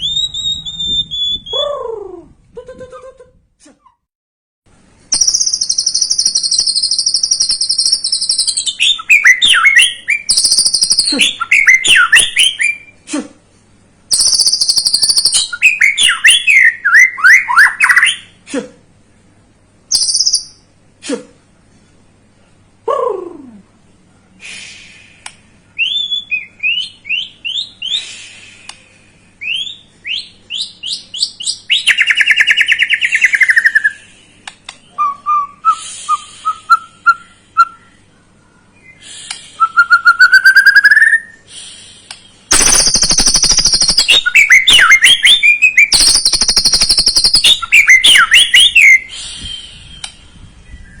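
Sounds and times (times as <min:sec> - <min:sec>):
bird singing whistles and trills: 0:00.0 - 0:01.8, 0:05.1 - 0:13.0, 0:14.1 - 0:18.3, 0:19.9 - 0:20.6, 0:25.8 - 0:28.1, 0:29.4 - 0:34.0, 0:39.6 - 0:41.4, 0:42.5 - 0:51.0
harsh bird rattling: 0:42.5 - 0:45.2, 0:45.9 - 0:47.6.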